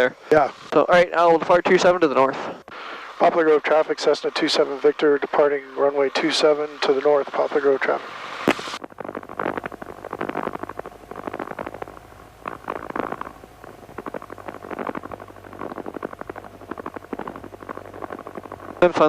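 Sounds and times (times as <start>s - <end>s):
crackling headset static: 0.0s - 19.0s
low engine hum: 8.7s - 19.0s.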